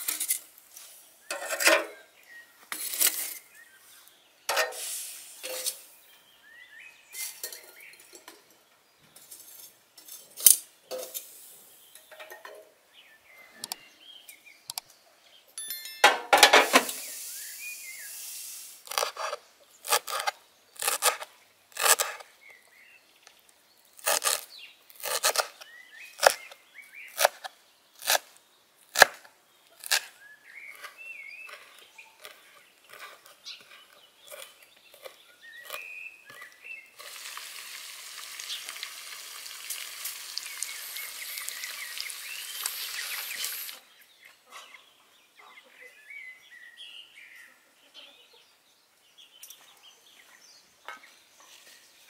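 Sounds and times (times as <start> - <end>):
birds chirping: 0.8 - 28.7, 29.4 - 37.0, 38.2 - 52.0
food sizzling on a hot griddle: 16.7 - 18.8, 37.0 - 43.8.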